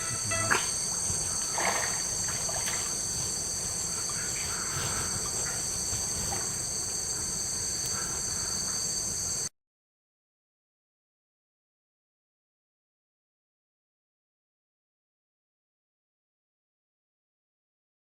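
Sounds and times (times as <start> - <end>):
faint animal calls: 0.0 - 8.9
insects buzzing drone: 0.0 - 9.5.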